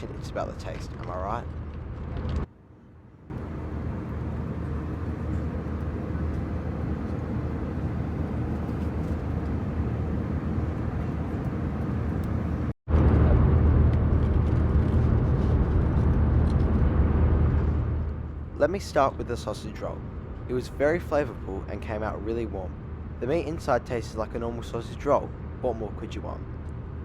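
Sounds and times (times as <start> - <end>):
aircraft cabin engine drone: 3.3 - 22.3.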